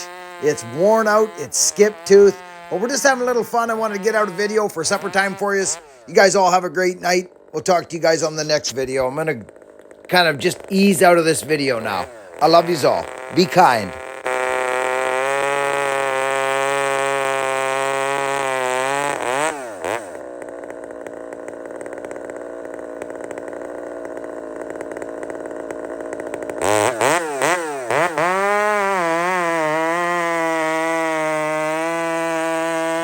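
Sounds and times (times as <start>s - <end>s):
chainsaw idling and revving: 0.0s - 33.0s.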